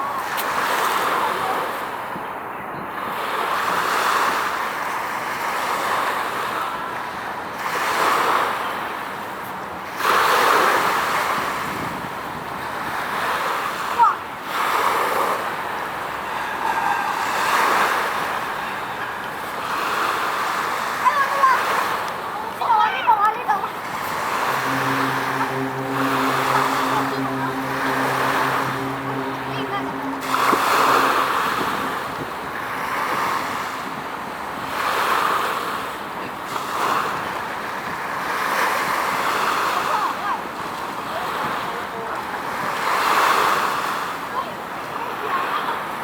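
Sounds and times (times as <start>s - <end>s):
waves washing against shore: 3.1s - 46.0s
wind on microphone: 23.5s - 35.2s.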